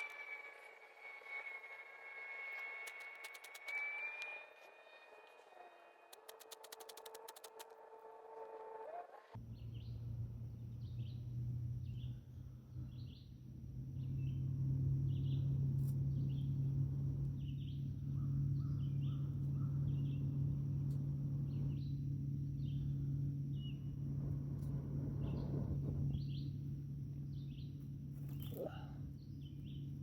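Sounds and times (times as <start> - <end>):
faint high-pitched whine: 0.0 - 30.0
steady low hum: 0.0 - 30.0
bird chirping: 17.3 - 20.4.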